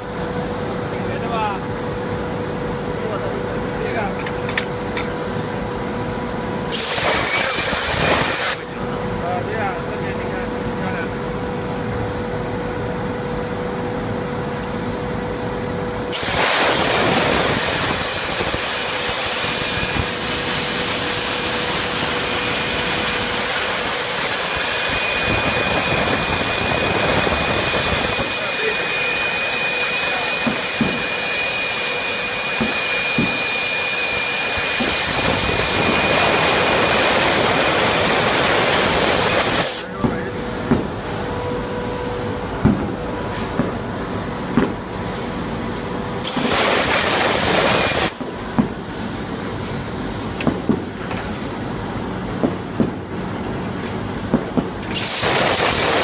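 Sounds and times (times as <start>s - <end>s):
steady machine hum: 0.0s - 56.0s
plasma torch arc hissing: 4.4s - 8.8s, 16.1s - 42.3s, 44.7s - 45.5s, 46.2s - 51.7s, 52.6s - 56.0s
thin high whine: 14.6s - 43.5s.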